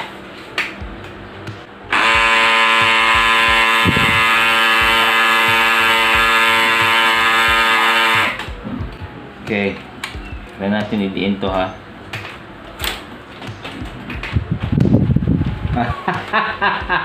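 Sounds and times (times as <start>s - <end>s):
printer grinding buzz: 1.9s - 8.5s.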